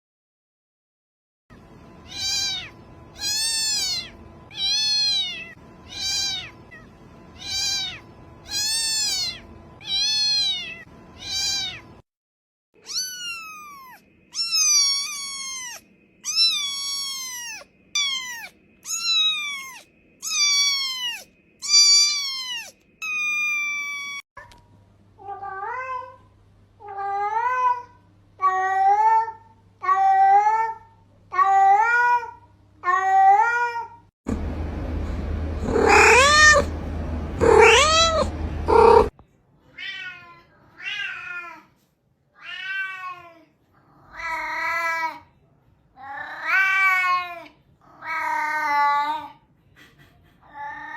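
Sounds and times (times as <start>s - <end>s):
steady low hum: 1.5s - 10.0s, 34.3s - 39.1s
cat meowing: 2.0s - 12.0s, 12.8s - 24.2s, 35.6s - 36.7s, 37.4s - 39.1s, 39.8s - 41.6s, 42.4s - 43.4s.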